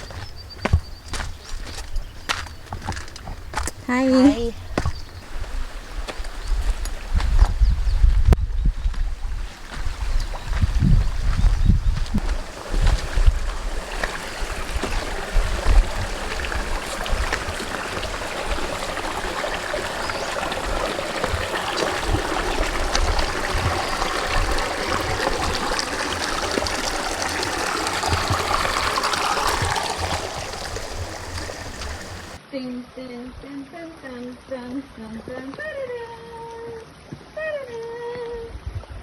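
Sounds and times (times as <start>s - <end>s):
creek water over rocks: 0.0s - 7.6s, 8.9s - 32.4s
low rumbles: 6.4s - 32.4s.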